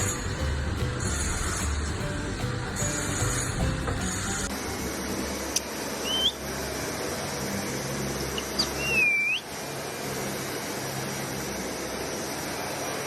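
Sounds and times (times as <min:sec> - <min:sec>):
parrot whistling: 0:06.0 - 0:06.4, 0:08.6 - 0:09.5.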